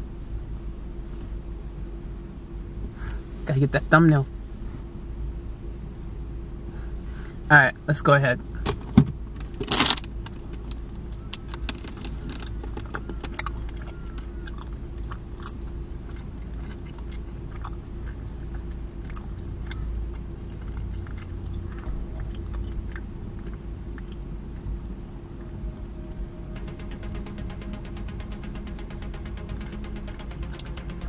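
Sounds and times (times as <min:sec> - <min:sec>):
steady low hum: 0:00.0 - 0:31.0
wet chewing sounds: 0:10.2 - 0:31.0.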